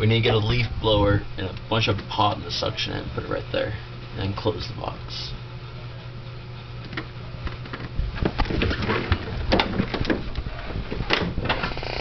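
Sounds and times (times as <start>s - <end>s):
steady low hum: 0.0s - 12.0s
handling knocks and clattering: 6.9s - 11.6s.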